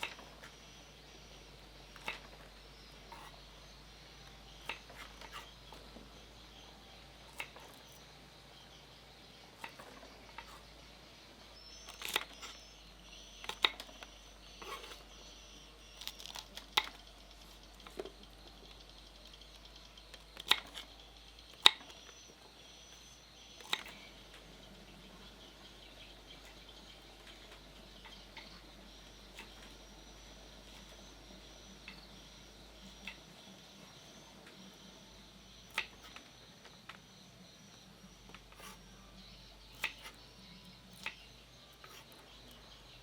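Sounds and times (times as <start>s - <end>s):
faint steady background noise: 0.0s - 43.0s.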